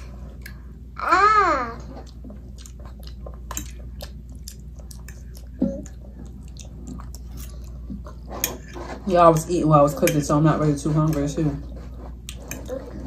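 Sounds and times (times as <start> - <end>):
chewing and wet mouth clicks: 2.0 - 8.2.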